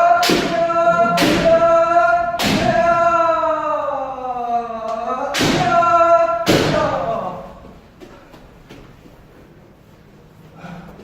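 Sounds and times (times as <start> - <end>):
long held shout: 0.0 - 7.6
bamboo sword strikes: 2.4 - 2.8, 5.4 - 5.8, 6.5 - 6.9.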